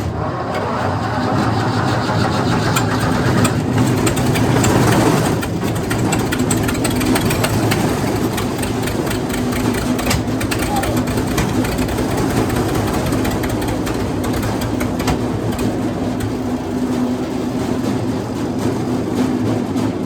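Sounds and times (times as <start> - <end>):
mechanical clatter: 0.0 - 20.0
wood chipper engine running: 0.0 - 20.0.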